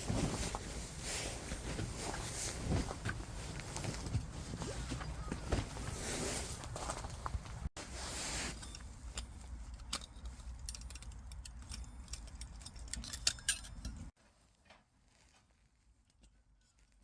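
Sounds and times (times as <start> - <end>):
metallic clicks and clinks: 8.5 - 14.2.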